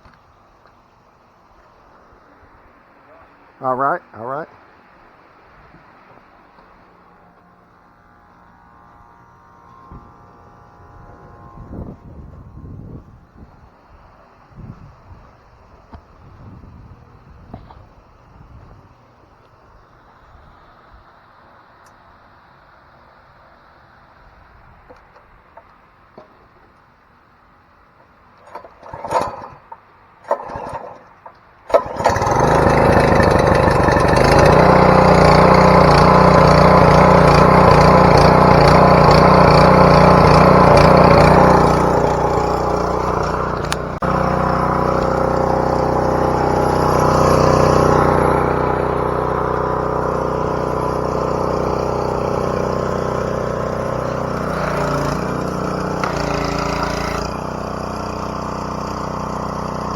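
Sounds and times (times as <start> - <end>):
engine pull-start: 28.4 - 59.9
small gasoline engine running: 28.4 - 59.9.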